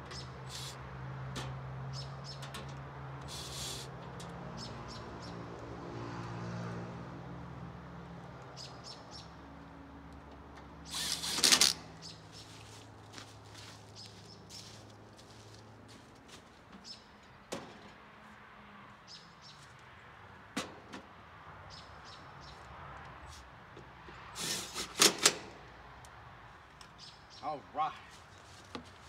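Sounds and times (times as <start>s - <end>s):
small birds chirping: 0.1s - 0.8s, 1.9s - 2.5s, 4.6s - 5.4s, 8.5s - 9.4s, 11.8s - 12.8s, 13.6s - 14.8s, 16.8s - 17.4s, 19.1s - 19.8s, 21.6s - 22.7s, 26.8s - 28.6s.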